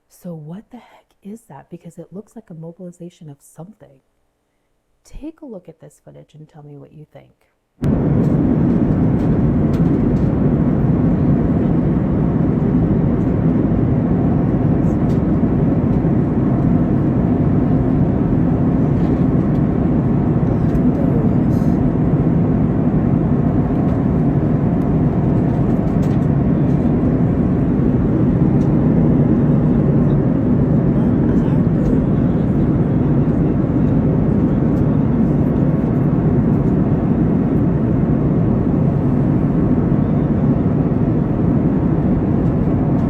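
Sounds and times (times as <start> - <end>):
jet airliner cabin drone: 7.8 - 43.0.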